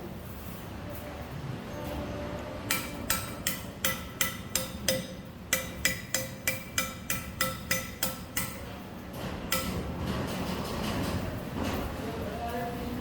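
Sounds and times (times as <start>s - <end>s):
hammer striking metal: 2.6s - 10.3s.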